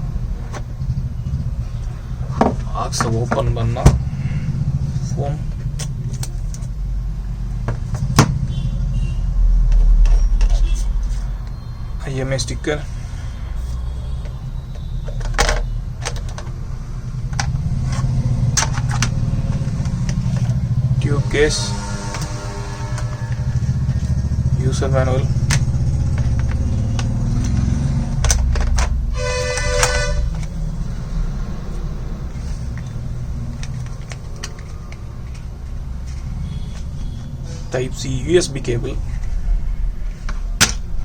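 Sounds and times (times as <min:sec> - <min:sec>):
low rumble: 0:00.0 - 0:41.0
short horn toot: 0:21.0 - 0:24.4, 0:29.1 - 0:30.4.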